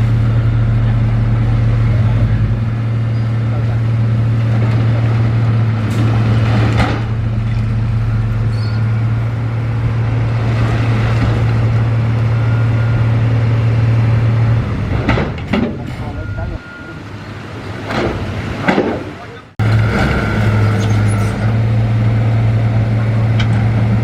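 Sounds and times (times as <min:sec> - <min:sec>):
heavy diesel engine running: 0:00.0 - 0:24.0
sharp knocks: 0:15.0 - 0:16.1, 0:17.9 - 0:19.2.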